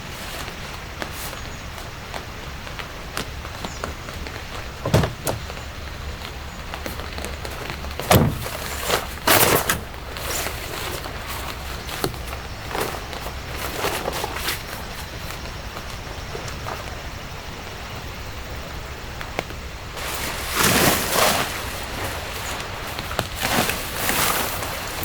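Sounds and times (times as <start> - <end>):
rustling handling noise: 0.0 - 17.4, 20.0 - 25.0
dull thump: 4.7 - 5.7, 7.9 - 10.0.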